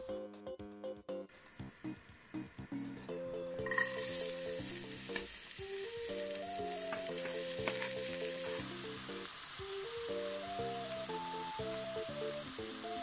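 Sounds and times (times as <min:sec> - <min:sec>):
bouncy background tune: 0:00.0 - 0:13.0
vegetables sizzling in hot oil: 0:03.6 - 0:13.0
knife and board clicking on pan: 0:06.9 - 0:08.6.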